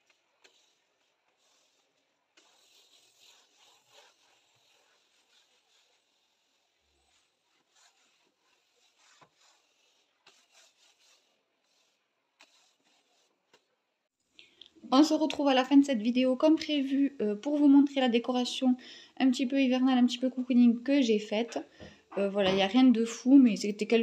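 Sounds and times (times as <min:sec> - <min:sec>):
faint rubbing and scraping: 0:00.0 - 0:13.9.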